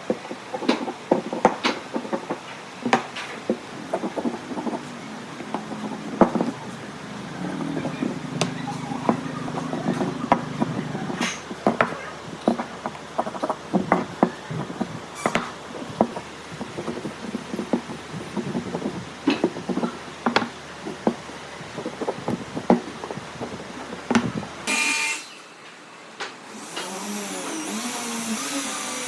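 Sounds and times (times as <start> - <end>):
low hum: 3.6 - 19.2.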